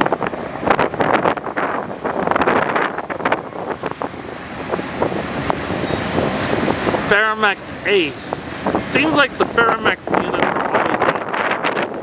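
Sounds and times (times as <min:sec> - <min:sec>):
wind on microphone: 0:00.0 - 0:07.0, 0:07.7 - 0:12.0
train rumble: 0:00.0 - 0:12.0.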